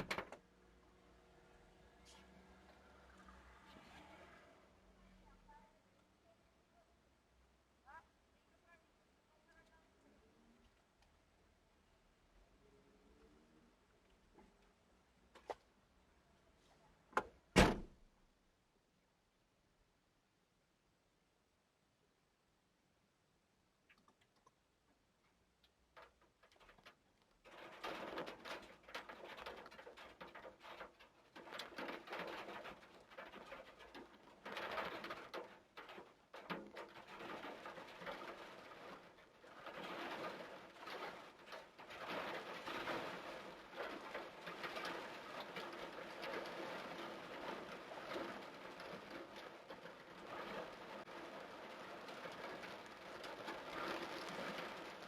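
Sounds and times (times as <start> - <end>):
heavy rain pouring: 27.5 - 55.0.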